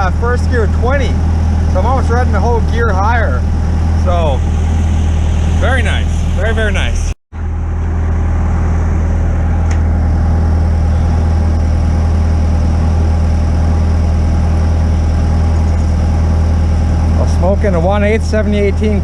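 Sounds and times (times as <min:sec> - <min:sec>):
welder engine running: 0:00.0 - 0:19.0.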